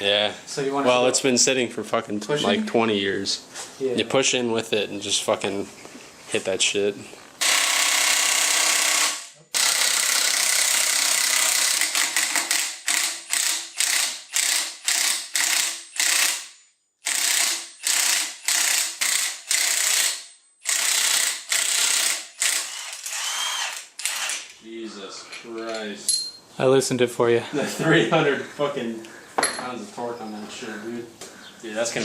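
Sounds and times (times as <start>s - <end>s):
impact wrench hammering: 7.4s - 24.5s.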